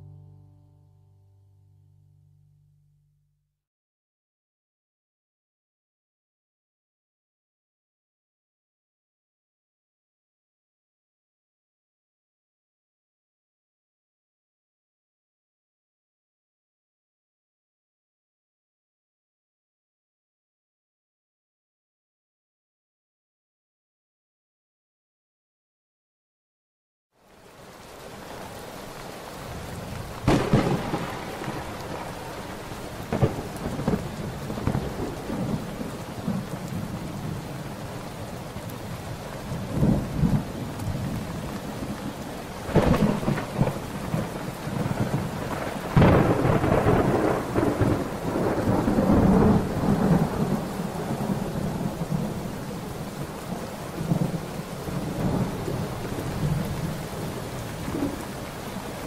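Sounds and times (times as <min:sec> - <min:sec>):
steady rain: 0:27.2 - 0:59.0
thunderclaps and rumble: 0:29.0 - 0:59.0.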